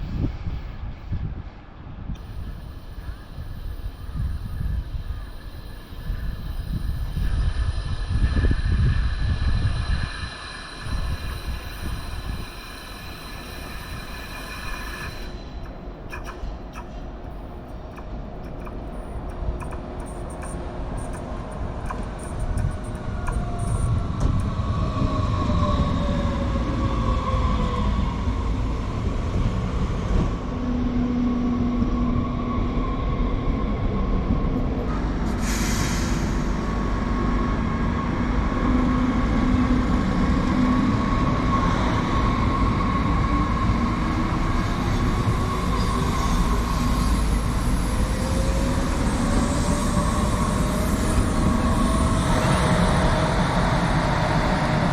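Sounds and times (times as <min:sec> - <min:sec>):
rail rumble: 0:00.0 - 0:54.9
electric train motor whine: 0:02.2 - 0:29.2, 0:36.2 - 0:54.9
short hiss: 0:35.4 - 0:36.6.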